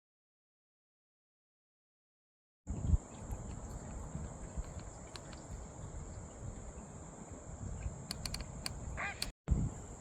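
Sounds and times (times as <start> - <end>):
crickets trilling: 2.7 - 10.0
low rumble on microphone: 2.7 - 10.0.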